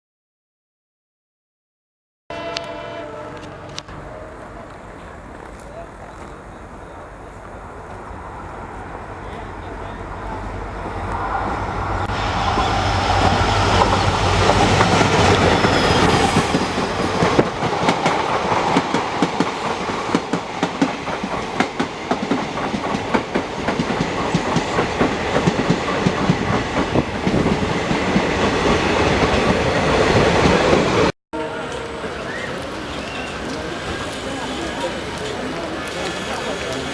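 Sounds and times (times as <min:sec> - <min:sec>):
coach wheels clickety-clack: 0:02.6 - 0:08.6, 0:09.2 - 0:36.9
locomotive engine drone: 0:02.6 - 0:17.5.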